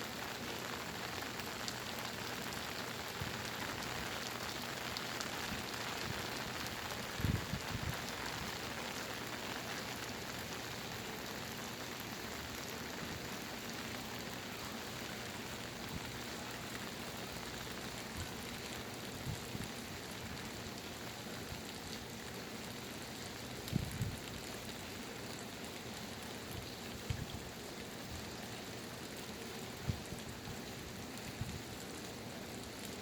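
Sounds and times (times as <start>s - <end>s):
heavy rain hissing: 0.0s - 25.2s.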